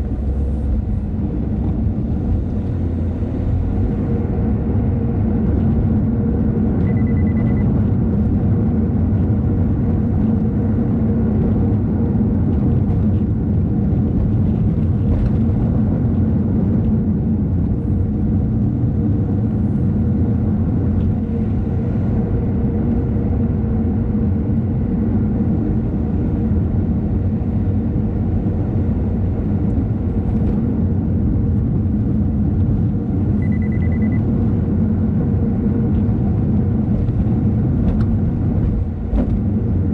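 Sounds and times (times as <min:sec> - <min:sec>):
car road and engine rumble: 0:00.0 - 0:39.9
short high beep: 0:06.8 - 0:07.7, 0:33.4 - 0:34.3.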